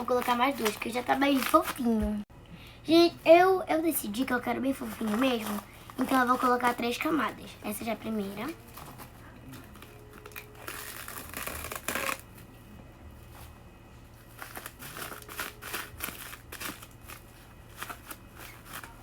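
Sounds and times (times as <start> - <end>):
plastic cling film crinkling: 0.0 - 2.0, 4.6 - 12.3, 14.2 - 19.0.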